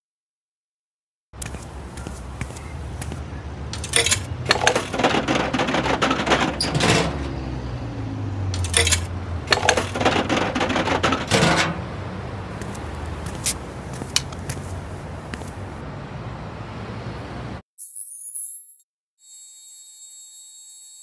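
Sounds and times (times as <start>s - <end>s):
clattering and clinking clicks: 3.8s - 7.2s, 8.6s - 11.8s.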